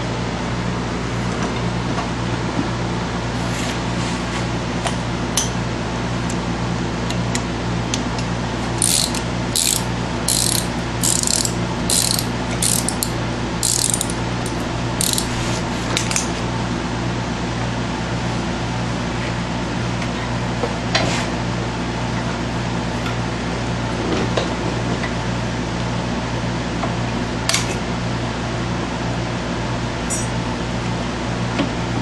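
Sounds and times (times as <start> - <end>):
steady low hum: 0.0 - 19.8
hand ratchet clicking: 8.8 - 15.3.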